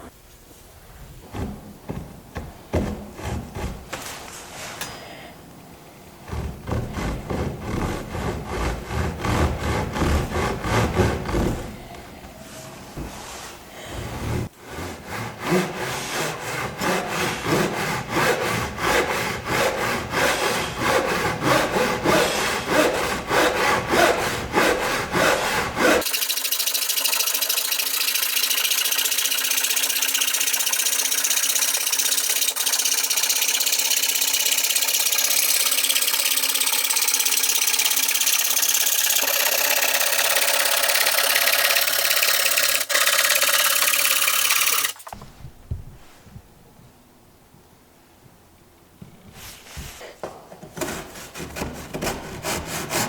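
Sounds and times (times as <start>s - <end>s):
handsaw cutting wood: 6.3s - 11.8s, 14.6s - 45.0s, 50.8s - 53.0s.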